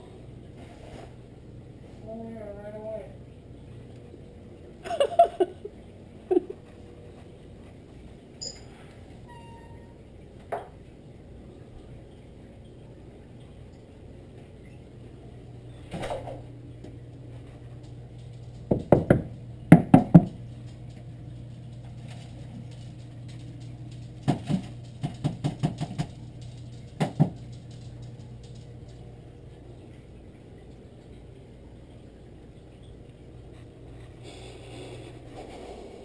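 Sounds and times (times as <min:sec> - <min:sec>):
steady low hum: 0:00.0 - 0:36.0
sharp knocks and taps: 0:18.7 - 0:20.4, 0:24.2 - 0:26.2, 0:27.0 - 0:27.5.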